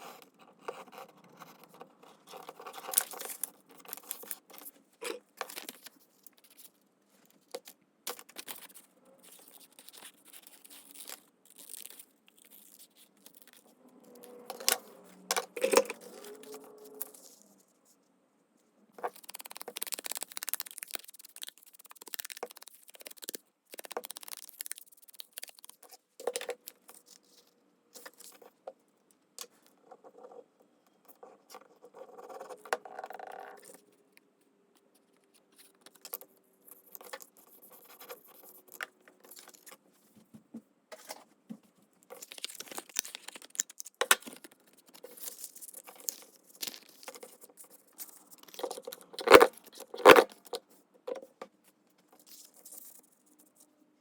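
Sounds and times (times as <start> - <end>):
faint drawn-out tone: 13.8 - 17.6
paper rustling: 19.0 - 25.8.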